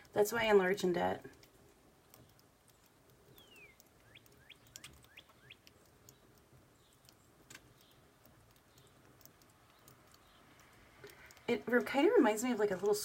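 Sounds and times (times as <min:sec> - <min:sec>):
faint clicks: 0:01.3 - 0:13.0
bird rising chirps: 0:03.3 - 0:06.2.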